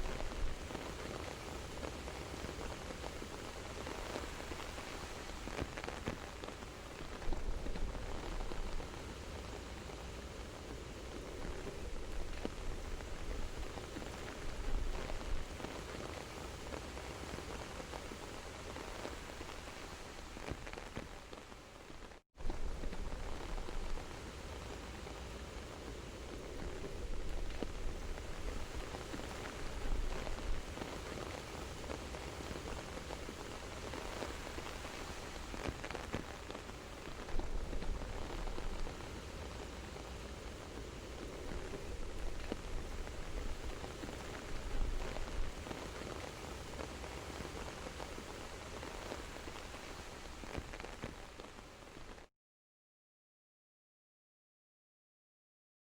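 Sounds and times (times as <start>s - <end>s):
soft steady rain: 0.0s - 52.3s.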